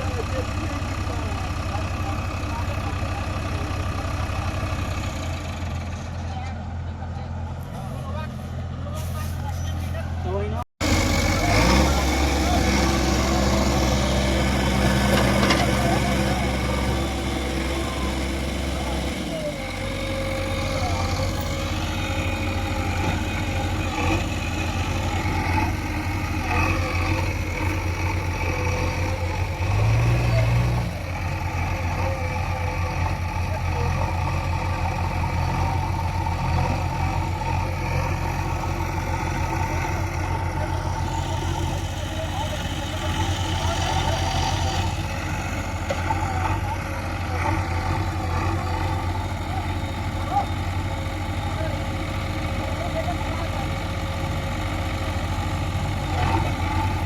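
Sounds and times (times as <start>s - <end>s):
diesel engine rumbling: 0.0s - 57.0s.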